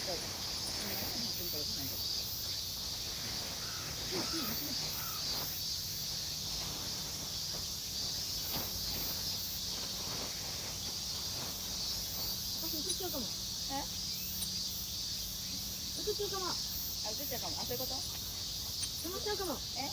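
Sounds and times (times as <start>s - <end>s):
insects shrilling: 0.0s - 19.9s.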